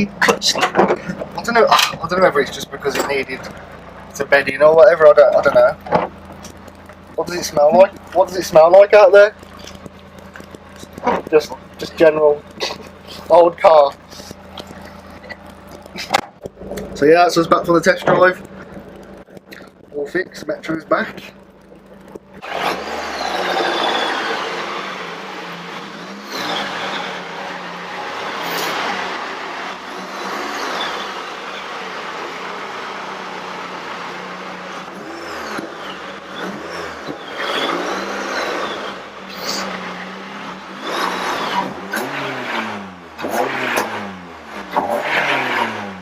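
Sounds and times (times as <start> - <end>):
car engine revving: 0.0 - 46.0.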